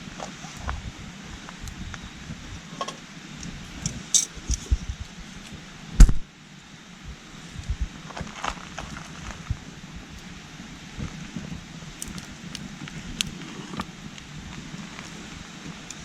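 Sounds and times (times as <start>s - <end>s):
campfire crackles and pops: 0.1s - 2.5s, 3.3s - 6.3s, 7.6s - 16.0s.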